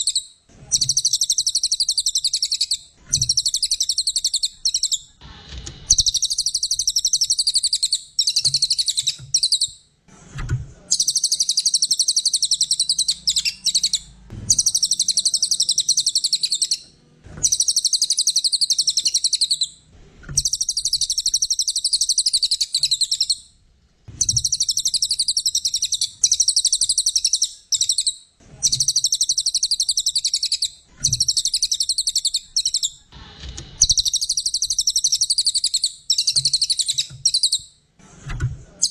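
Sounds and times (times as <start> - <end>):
songbird chattering trills: 0.8 - 5.1, 10.9 - 16.8, 17.4 - 19.7, 20.4 - 23.4, 24.2 - 33.0.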